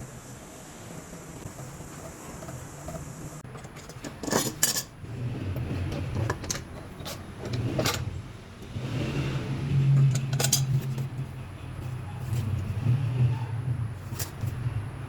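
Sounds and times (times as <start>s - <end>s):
hard objects knocking and clinking: 1.5s - 5.0s.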